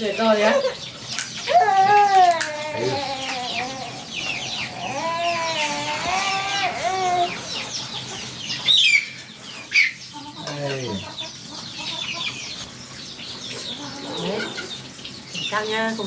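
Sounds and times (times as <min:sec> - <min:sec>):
chickens clucking and chirping: 0:00.0 - 0:16.0
sharp chicken calls: 0:01.4 - 0:12.8.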